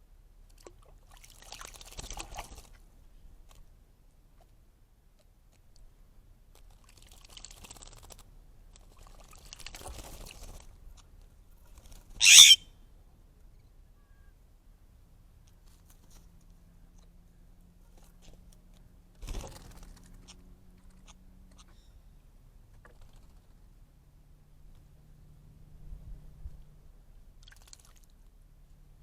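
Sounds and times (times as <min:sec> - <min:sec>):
jay harsh call: 0:12.2 - 0:12.6.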